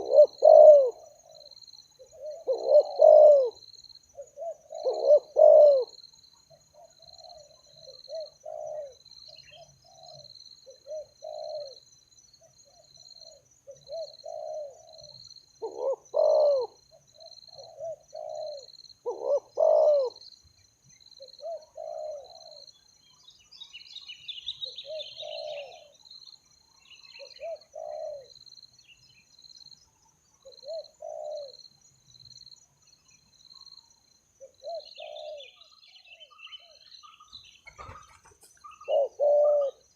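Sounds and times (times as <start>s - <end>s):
doves cooing: 0.0s - 3.6s, 4.2s - 11.8s, 12.7s - 20.2s, 21.2s - 22.8s, 24.6s - 26.0s, 27.0s - 28.4s, 30.5s - 31.6s, 34.4s - 39.9s
small bird chirping: 32.8s - 39.9s.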